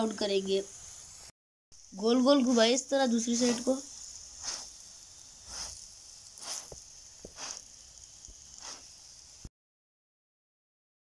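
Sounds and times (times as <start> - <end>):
flatbread sizzling in oil: 0.0 - 9.5
soft swish of bread spinning: 4.4 - 4.8, 5.4 - 7.7, 8.5 - 8.9.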